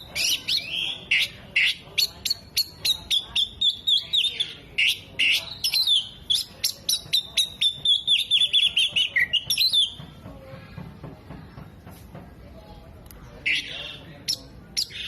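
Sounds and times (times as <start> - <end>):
bird singing chirps and whistles: 0.0 - 10.0.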